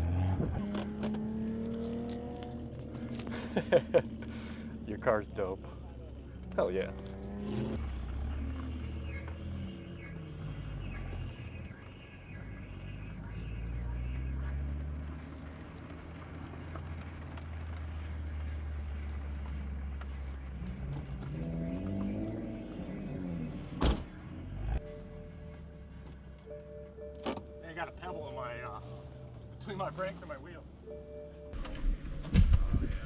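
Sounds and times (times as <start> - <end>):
car engine droning: 0.0 - 33.0.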